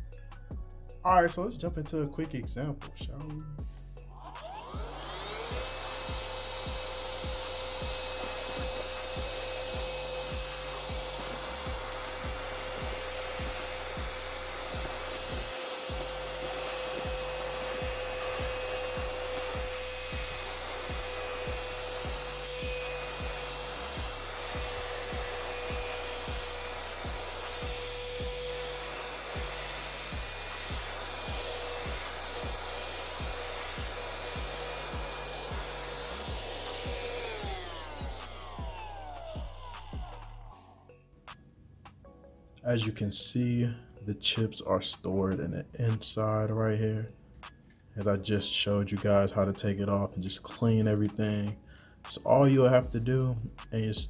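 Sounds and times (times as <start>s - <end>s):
instrumental music with bass beat: 0.0s - 41.4s, 52.8s - 54.0s
handheld vacuum cleaner whining: 4.1s - 40.6s.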